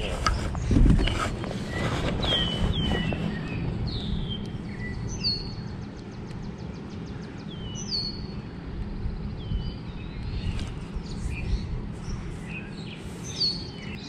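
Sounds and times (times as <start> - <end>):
low outdoor rumble: 0.0 - 14.0
songbirds chirping and trilling: 0.0 - 14.0.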